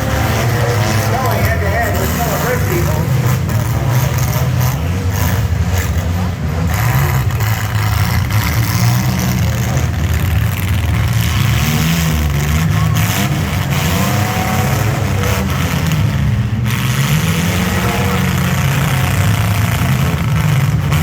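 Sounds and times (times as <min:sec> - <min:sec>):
vehicle engines revving: 0:00.0 - 0:21.0.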